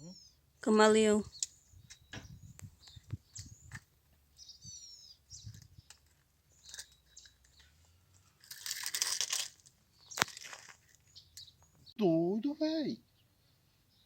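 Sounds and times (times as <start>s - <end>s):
bird chirps: 0.0s - 8.4s, 9.9s - 14.0s
small clicks and knocks: 5.5s - 11.8s.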